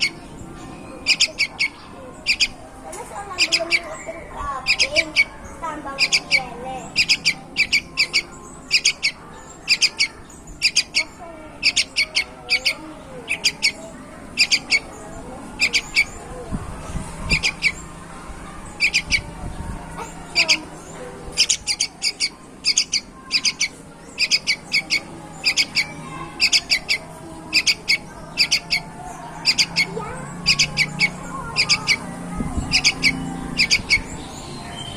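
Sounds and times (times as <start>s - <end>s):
bird chirping: 0.0s - 18.0s, 18.6s - 34.9s.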